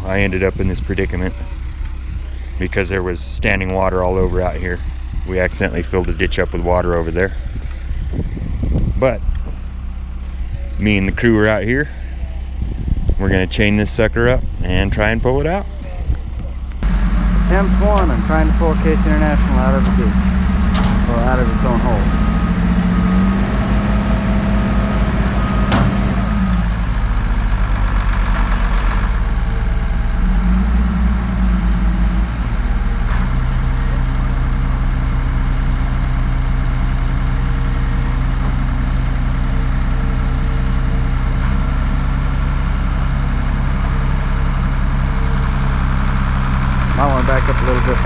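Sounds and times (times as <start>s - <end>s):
heavy diesel engine running: 0.0s - 48.0s.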